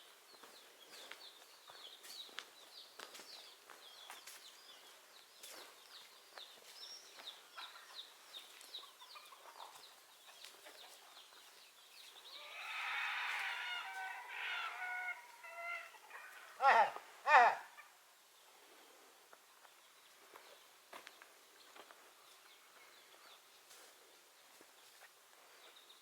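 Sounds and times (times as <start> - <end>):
chickens chirping: 0.3 - 26.0
chicken calling: 12.3 - 18.0.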